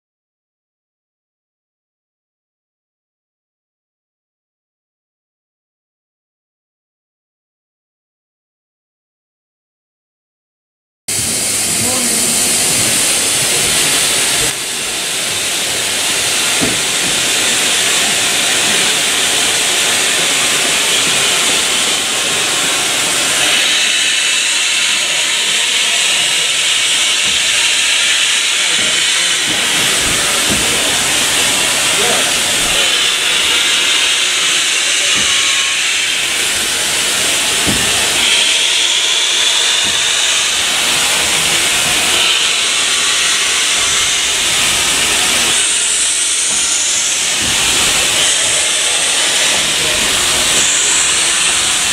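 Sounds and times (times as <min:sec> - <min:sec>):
steam locomotive hissing: 0:11.1 - 0:51.9.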